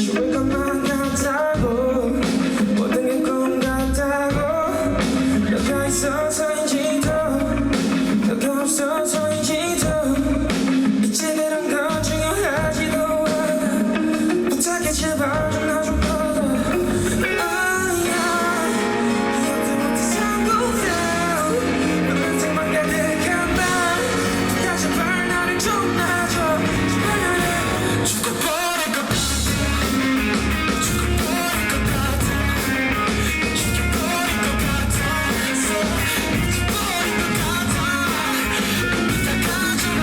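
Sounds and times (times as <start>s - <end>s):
bass: 0.0s - 40.0s
electric guitar: 0.0s - 40.0s
live rock band playing: 0.0s - 40.0s
person singing: 0.0s - 40.0s.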